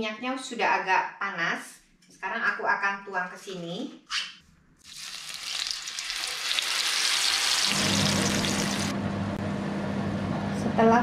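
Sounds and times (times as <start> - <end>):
paste sizzling in hot oil: 4.8 - 8.9
steady low hum: 7.8 - 11.0.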